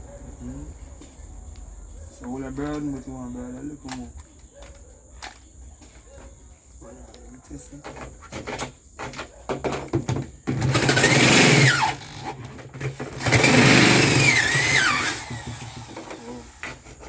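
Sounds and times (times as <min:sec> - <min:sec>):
electric drill whining: 0:10.5 - 0:16.9.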